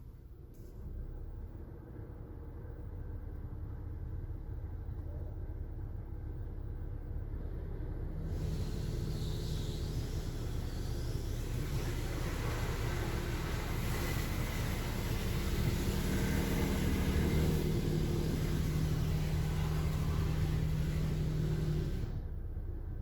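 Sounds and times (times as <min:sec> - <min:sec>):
motor humming and hissing: 0:08.2 - 0:22.3.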